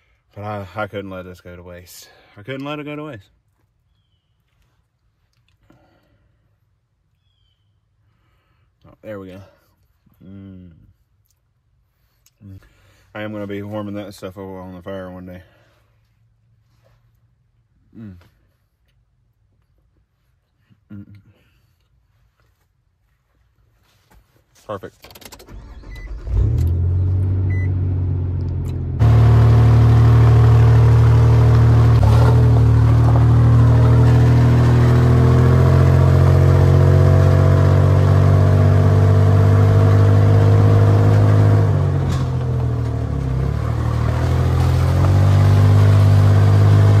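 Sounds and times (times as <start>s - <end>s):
car engine accelerating: 25.6s - 47.0s.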